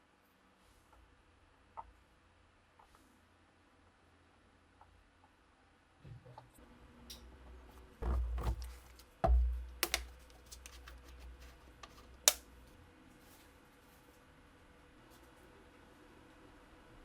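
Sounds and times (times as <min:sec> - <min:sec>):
small clicks and knocks: 0:08.4 - 0:12.5
sharp click: 0:09.8 - 0:10.1, 0:12.3 - 0:12.5.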